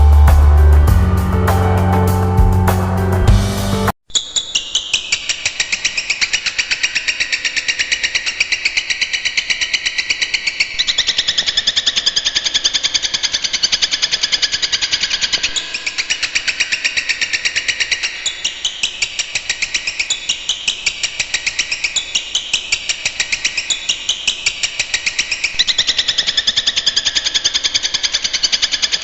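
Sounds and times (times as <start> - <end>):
bird singing a fast trill: 15.3 - 29.0.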